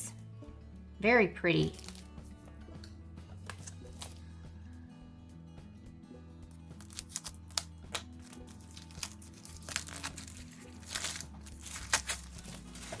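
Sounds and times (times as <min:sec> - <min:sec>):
soft background music: 0:00.0 - 0:13.0
plastic packaging crinkling: 0:01.7 - 0:02.1, 0:06.8 - 0:13.0.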